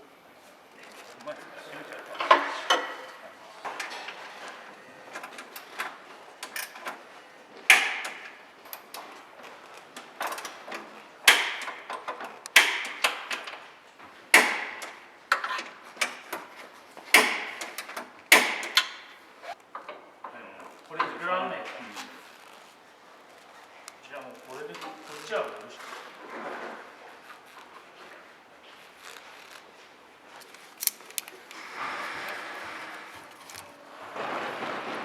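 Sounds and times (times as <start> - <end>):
tools knocking and clanking: 2.2 - 4.3, 7.7 - 9.1, 10.1 - 13.6, 14.3 - 20.4.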